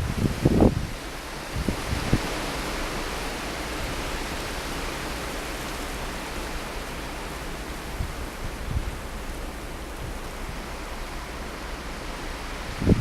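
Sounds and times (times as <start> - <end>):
wind buffeting thumps: 0.0 - 2.5, 7.4 - 11.6, 12.6 - 13.0
blizzard wind hissing: 0.0 - 13.0
wind rumbling on microphone: 0.0 - 13.0.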